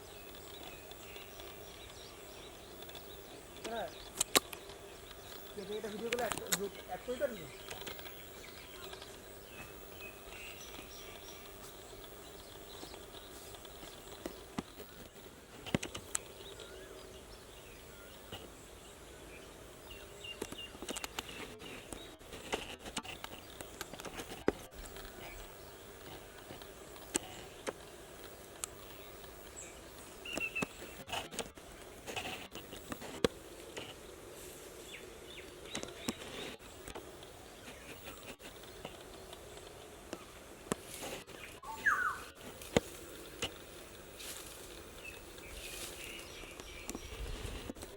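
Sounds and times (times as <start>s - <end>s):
sharp clicks and crackles: 2.7s - 9.7s, 10.6s - 16.7s, 20.4s - 34.0s, 35.5s - 41.6s, 42.3s - 43.8s
bird chirps: 29.0s - 31.0s, 41.3s - 42.4s.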